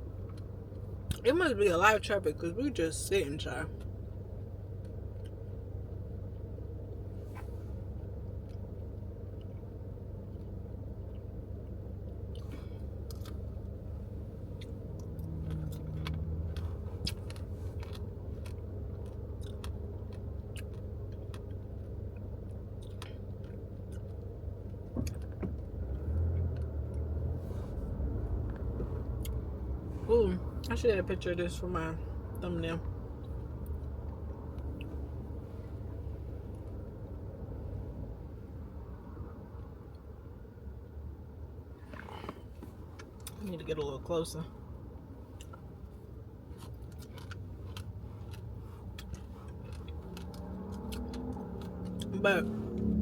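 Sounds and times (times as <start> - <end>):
car cabin hum while idling: 0.0 - 53.0
person chewing: 12.0 - 25.3, 45.4 - 52.1.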